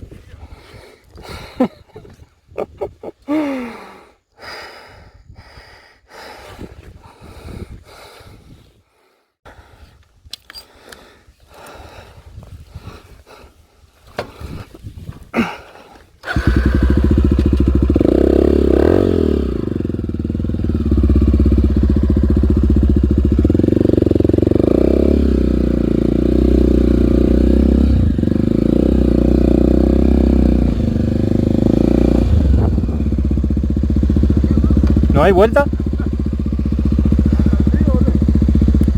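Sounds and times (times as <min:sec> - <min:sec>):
dirt bike engine revving: 0:16.2 - 0:38.9.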